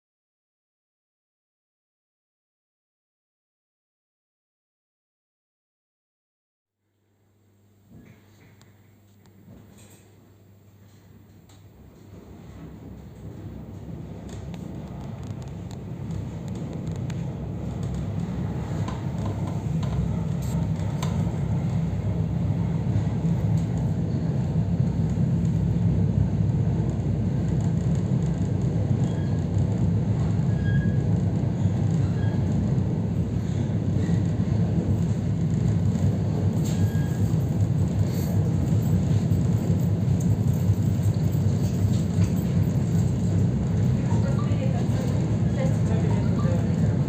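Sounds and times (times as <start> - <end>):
train rumbling on track: 10.6 - 47.0.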